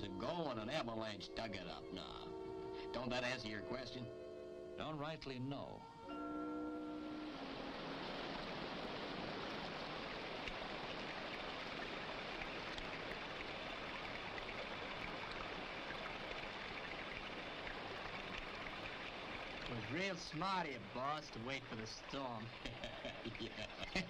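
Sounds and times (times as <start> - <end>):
water rushing: 6.6 - 24.0.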